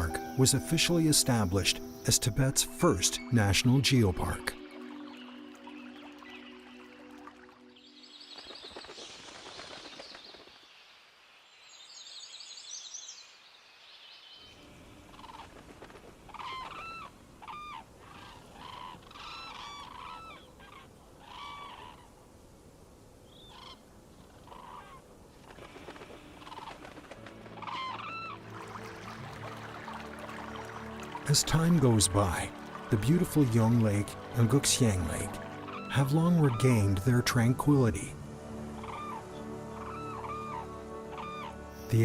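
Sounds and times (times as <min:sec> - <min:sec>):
birds twittering song: 0:00.0 - 0:15.6, 0:16.2 - 0:22.1, 0:23.2 - 0:25.0, 0:25.6 - 0:42.0
steady background hiss: 0:10.6 - 0:42.0.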